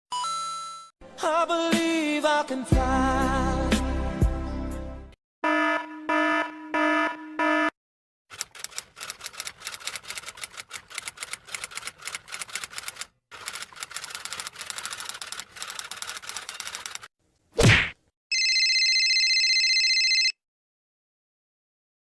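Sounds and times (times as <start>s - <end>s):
rapid typing key clicks: 8.3s - 17.1s.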